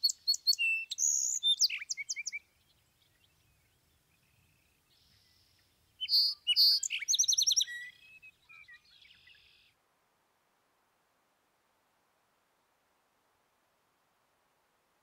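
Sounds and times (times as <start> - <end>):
songbird chirping and trilling: 0.0 - 9.8.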